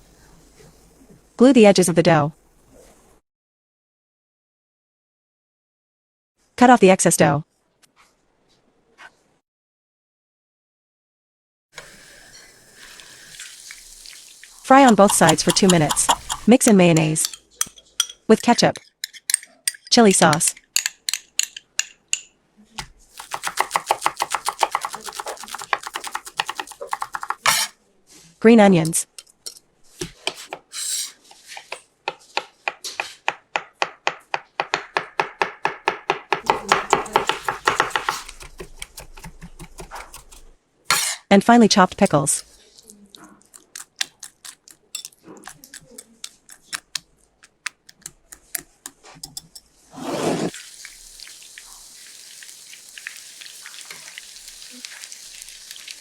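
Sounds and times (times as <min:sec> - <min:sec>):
knife chopping on cutting board: 0:14.9 - 0:16.5, 0:22.8 - 0:27.7, 0:31.5 - 0:41.2
utensil tapping against bowl: 0:14.9 - 0:18.2, 0:23.4 - 0:27.4.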